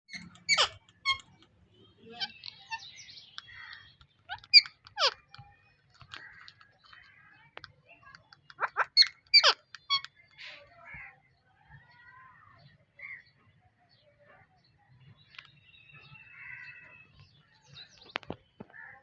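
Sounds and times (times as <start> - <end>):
parrots squawking: 0.1 - 1.5, 2.1 - 7.1, 8.3 - 10.6
faint chirps and clicks: 0.1 - 13.6, 14.2 - 19.0.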